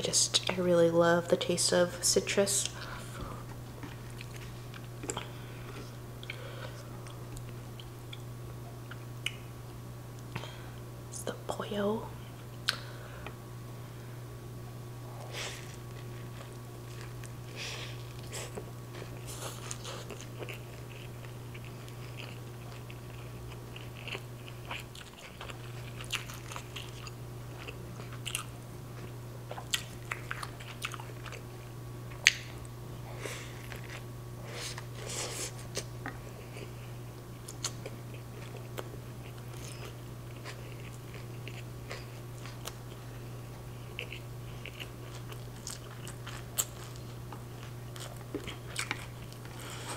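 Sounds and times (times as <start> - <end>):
chewing mouth sounds: 18.1 - 31.4.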